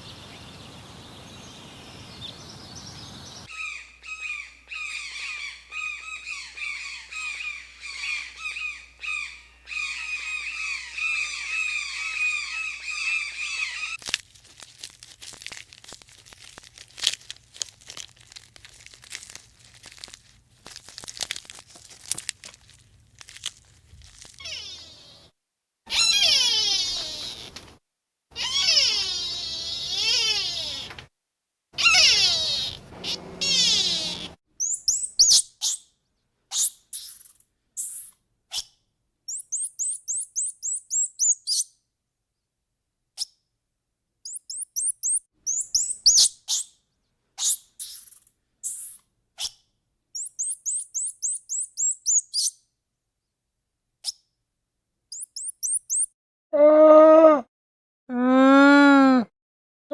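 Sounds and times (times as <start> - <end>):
small bird chirping: 0.0 - 14.0, 24.0 - 25.3, 25.9 - 27.8, 28.4 - 31.0, 31.8 - 41.8, 44.2 - 46.8, 47.4 - 52.6, 55.1 - 56.1
high wavering animal calls: 3.4 - 14.0, 24.4 - 25.3, 25.9 - 31.0, 31.8 - 35.4, 55.2 - 57.5.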